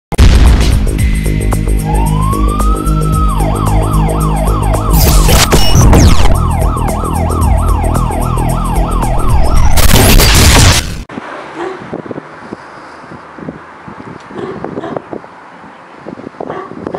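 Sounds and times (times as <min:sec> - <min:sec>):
fire engine siren wailing and yelping: 0:01.8 - 0:09.8
loud rush of noise: 0:08.4 - 0:12.3.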